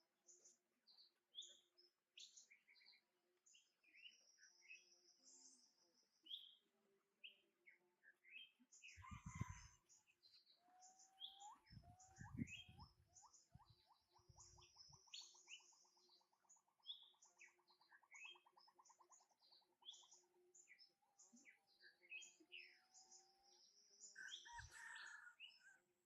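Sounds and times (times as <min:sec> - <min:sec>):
birds chirping: 0:08.1 - 0:25.7
bird singing rapid trill: 0:10.8 - 0:19.0.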